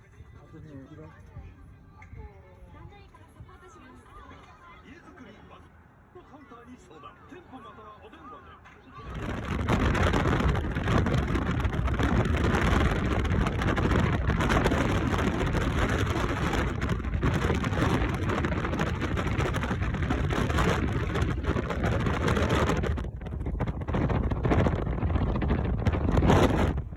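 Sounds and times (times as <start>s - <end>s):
wind buffeting microphone: 9.0s - 26.9s.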